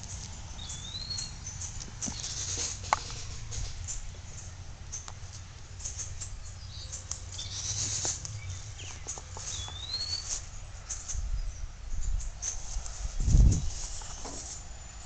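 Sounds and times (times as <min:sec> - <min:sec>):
bird chirps: 0:00.1 - 0:02.8, 0:03.8 - 0:15.0
rustling: 0:01.6 - 0:04.5, 0:06.9 - 0:11.2, 0:12.4 - 0:14.7.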